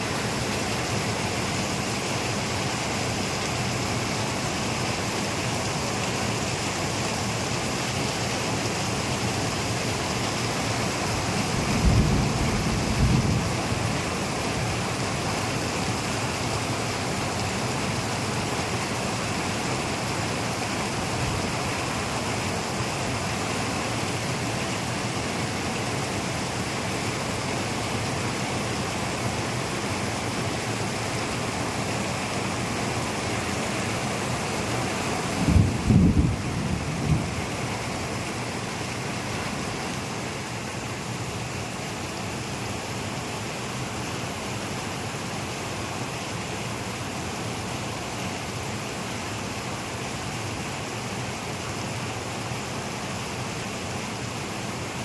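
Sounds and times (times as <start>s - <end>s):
steady rain falling: 0.0s - 55.0s
thunder rumble: 11.3s - 14.4s, 35.4s - 37.7s.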